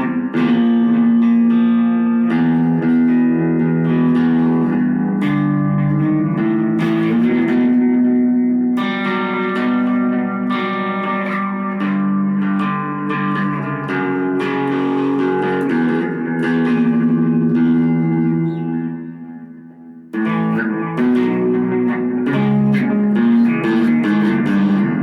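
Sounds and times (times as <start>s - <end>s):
guitar chords with effects: 0.0s - 25.0s.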